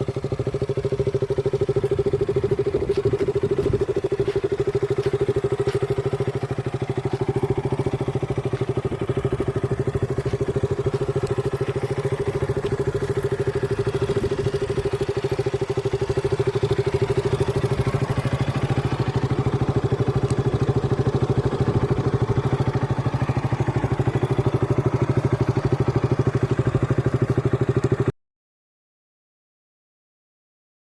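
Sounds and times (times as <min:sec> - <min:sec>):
motorcycle engine idling: 0:00.0 - 0:28.1.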